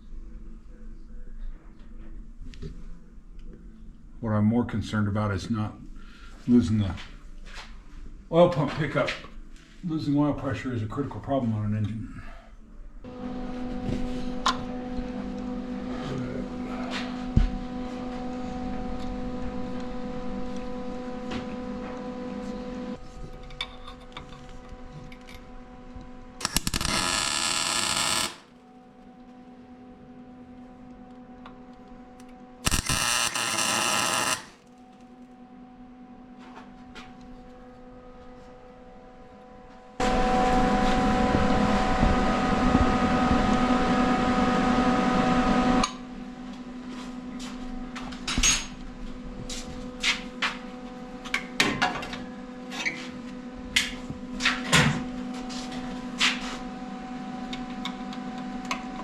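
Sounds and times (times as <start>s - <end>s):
steady hum: 12.0s - 51.6s
power tool running: 26.4s - 28.6s, 32.6s - 34.7s, 40.0s - 45.8s.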